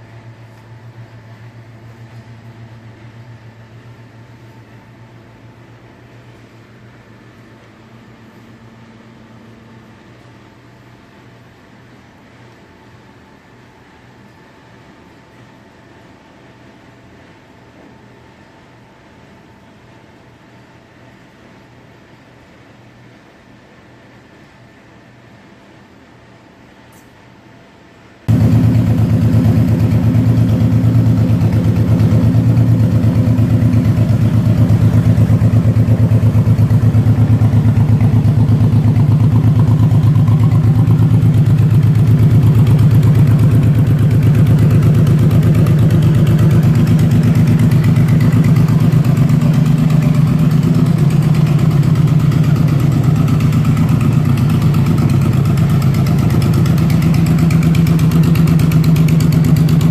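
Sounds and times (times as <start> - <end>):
motorcycle engine idling: 28.3 - 59.9.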